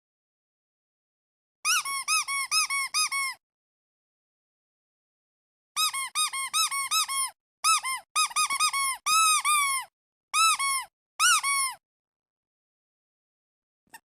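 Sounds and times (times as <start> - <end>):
rubber duck squeaking: 1.7 - 3.4, 5.8 - 11.8.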